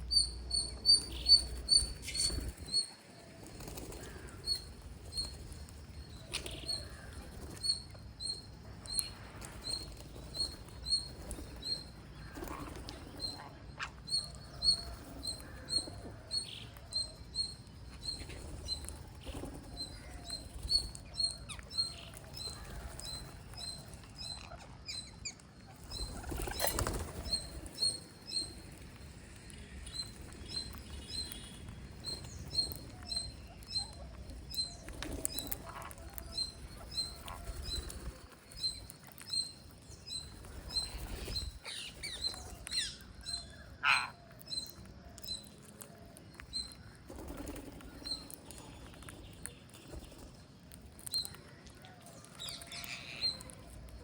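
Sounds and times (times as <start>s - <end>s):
parrots chirping: 41.6s - 44.8s
longer parrot calls: 43.8s - 44.2s.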